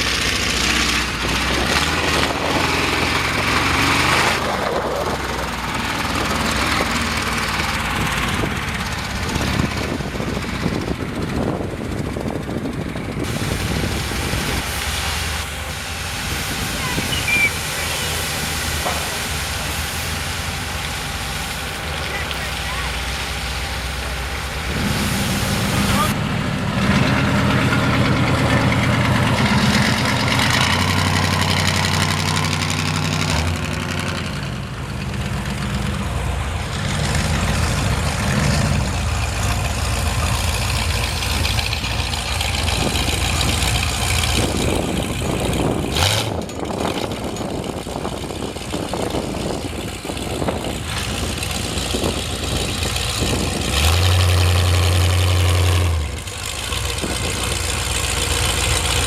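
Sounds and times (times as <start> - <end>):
truck engine idling: 0.0 - 59.0
steady hiss: 13.3 - 26.2.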